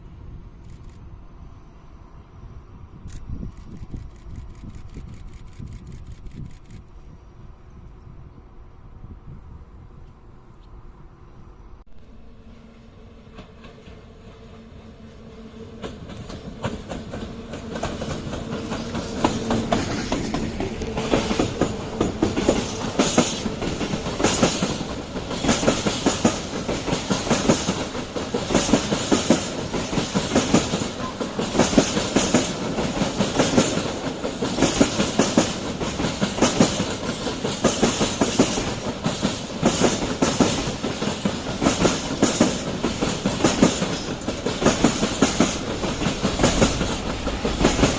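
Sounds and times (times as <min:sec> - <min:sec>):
train wheels clicking over rail joints: 0:15.2 - 0:47.9.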